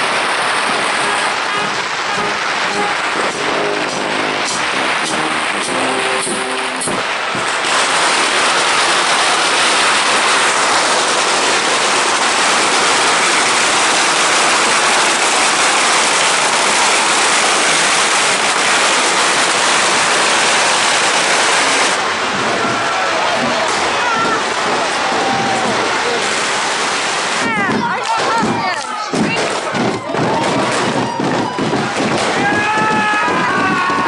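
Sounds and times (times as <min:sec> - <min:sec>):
loud rushing noise: 0:00.0 - 0:34.0
band music: 0:00.8 - 0:07.5.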